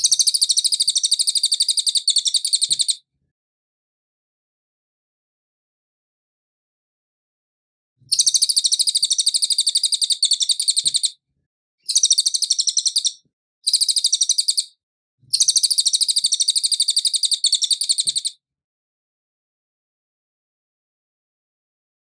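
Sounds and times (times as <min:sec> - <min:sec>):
songbird singing high trills: 0:00.0 - 0:03.0, 0:08.1 - 0:11.2, 0:11.8 - 0:14.7, 0:15.3 - 0:18.4.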